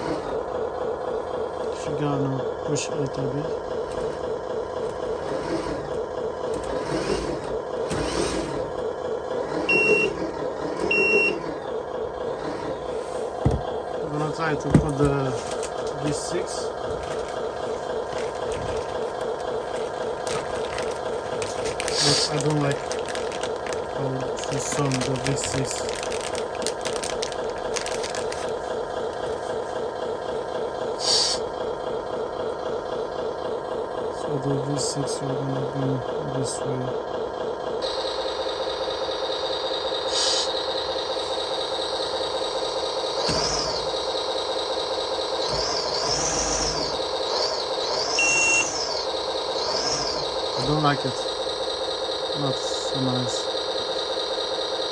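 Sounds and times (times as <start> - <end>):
simulated truck engine from speaker: 0.0 - 54.9
reversing beeps: 9.7 - 10.2, 10.8 - 11.5, 47.9 - 49.0
short hisses: 31.0 - 31.4.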